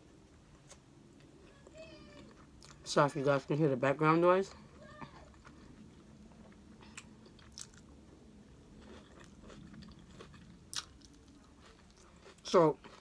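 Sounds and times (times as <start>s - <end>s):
quiet chewing: 5.1s - 13.0s.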